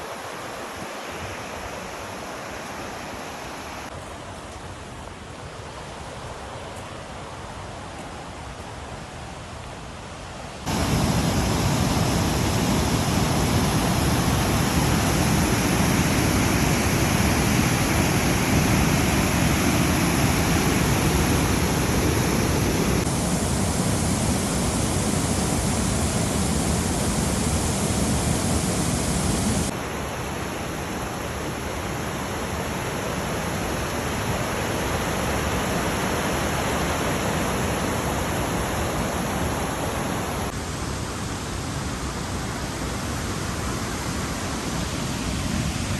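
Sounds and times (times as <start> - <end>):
waterfall rushing: 10.7 - 40.6.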